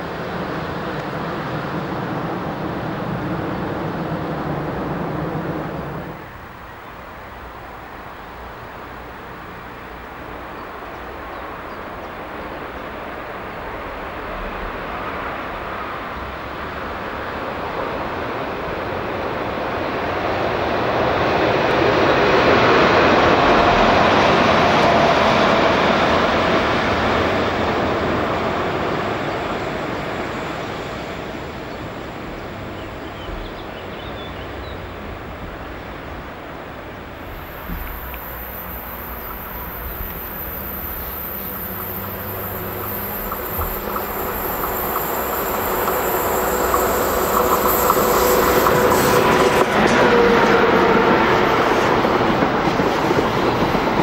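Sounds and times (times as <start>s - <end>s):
approaching train humming: 0.0s - 54.0s
train rumbling past: 0.0s - 54.0s
thin high whine: 37.2s - 52.0s.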